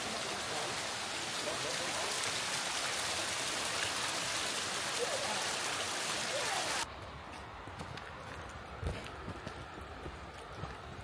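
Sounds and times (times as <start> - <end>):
river water rushing: 0.0 - 6.9.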